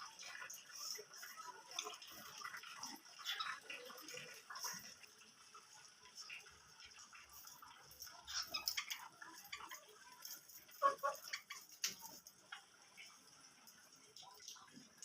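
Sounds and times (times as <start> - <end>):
small birds chirping: 2.2 - 5.0, 6.4 - 12.2.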